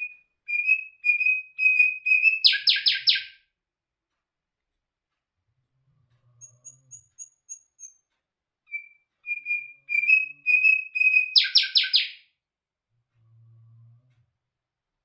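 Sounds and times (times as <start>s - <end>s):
songbird singing: 0.0s - 3.4s, 8.7s - 12.2s.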